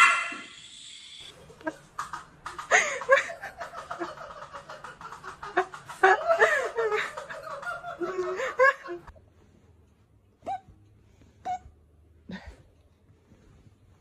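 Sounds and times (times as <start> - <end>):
person laughing in bursts: 1.7 - 9.1.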